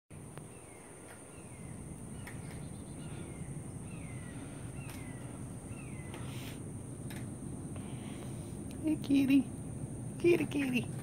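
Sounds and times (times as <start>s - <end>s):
low background rumble: 0.1s - 11.0s
steady high-pitched whine: 0.1s - 11.0s.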